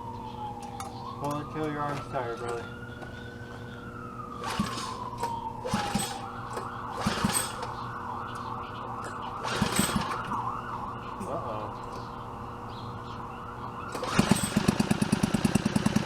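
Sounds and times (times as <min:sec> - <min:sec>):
siren-like tone: 0:00.0 - 0:14.7
pull-start cord rasping: 0:04.4 - 0:07.7, 0:13.9 - 0:16.0.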